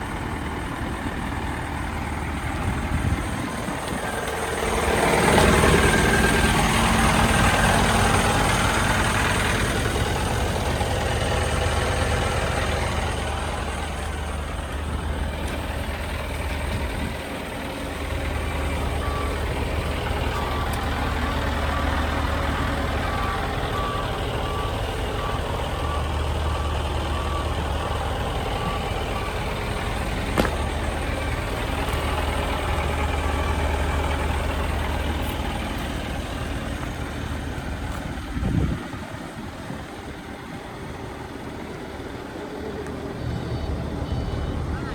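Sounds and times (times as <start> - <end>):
truck diesel engine running: 0.0 - 44.9
reversing alarm beeping: 18.4 - 31.4, 43.1 - 44.9.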